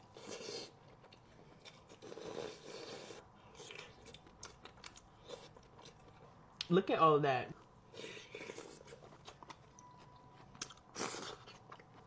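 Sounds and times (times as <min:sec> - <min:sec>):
person chewing and biting: 0:07.9 - 0:12.0.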